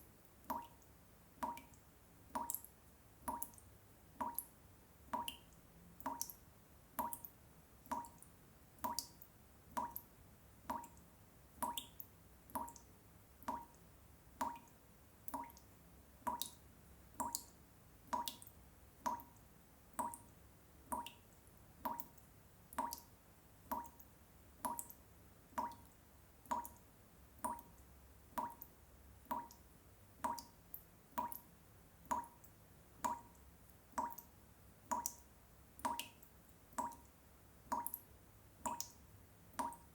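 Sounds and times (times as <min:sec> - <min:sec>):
water drops plopping: 0:03.3 - 0:03.6, 0:04.2 - 0:04.5, 0:05.2 - 0:05.4, 0:06.0 - 0:06.4, 0:09.8 - 0:10.1, 0:13.4 - 0:13.8, 0:33.1 - 0:33.4, 0:34.0 - 0:34.3, 0:37.7 - 0:38.0, 0:39.6 - 0:39.9.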